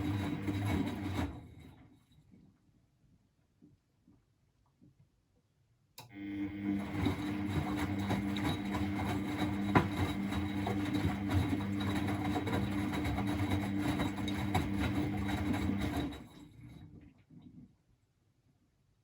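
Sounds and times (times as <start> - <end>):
washing machine motor hum: 0.0 - 1.8, 6.0 - 17.1.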